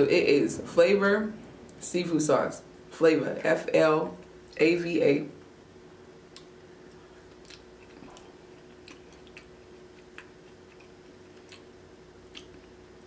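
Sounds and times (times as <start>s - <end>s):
wet mouth clicks while chewing: 6.3s - 12.8s.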